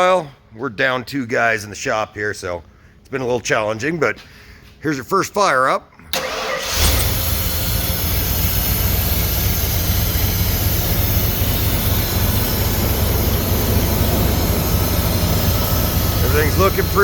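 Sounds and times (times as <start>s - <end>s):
engine running steadily: 6.2s - 17.0s.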